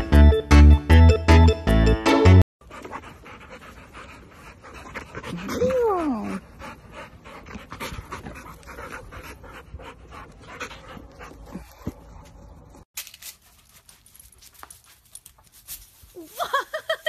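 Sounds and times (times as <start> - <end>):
dogs panting: 2.6 - 12.8.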